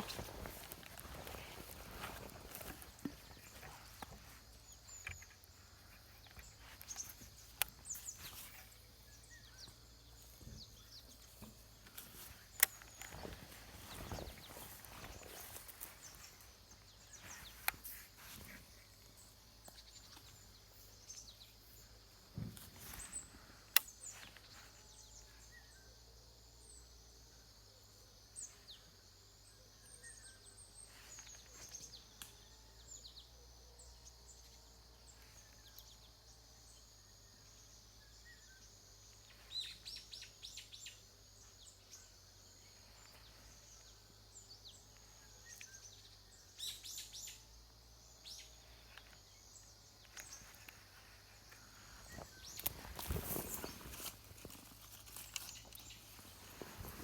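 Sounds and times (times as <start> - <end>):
rustles: 0.0 - 25.6, 39.1 - 57.0
bird chirps: 0.0 - 26.0, 28.3 - 57.0.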